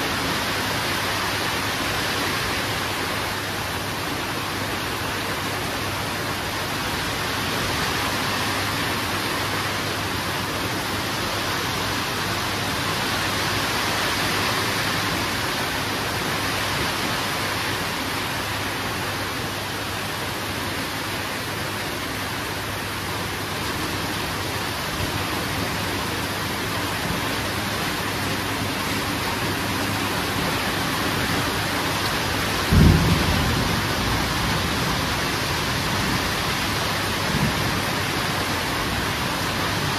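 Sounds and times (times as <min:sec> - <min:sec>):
heavy rain falling: 0:00.0 - 0:39.9
thunder clap: 0:32.6 - 0:35.3.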